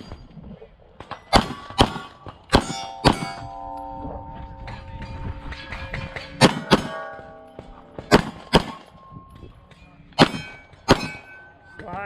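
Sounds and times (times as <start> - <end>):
steel plates clanging and ringing: 2.5 - 12.0
pistol shots: 8.0 - 8.9, 10.2 - 11.3.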